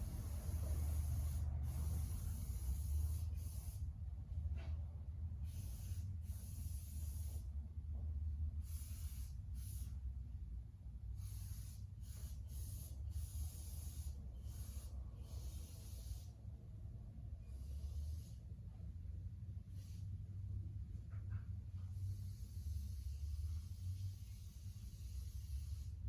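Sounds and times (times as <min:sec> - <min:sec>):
hissing sprays: 0:00.0 - 0:03.8.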